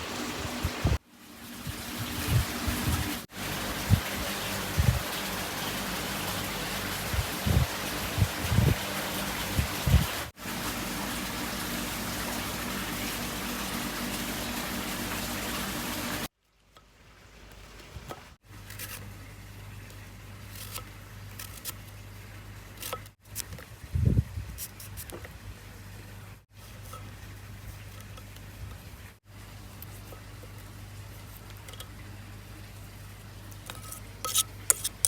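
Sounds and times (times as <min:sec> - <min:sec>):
water rushing: 0:00.0 - 0:16.3.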